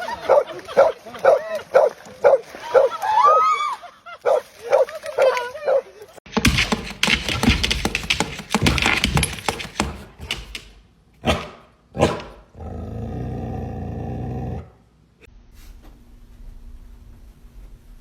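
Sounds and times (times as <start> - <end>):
dog growling: 11.2 - 14.8.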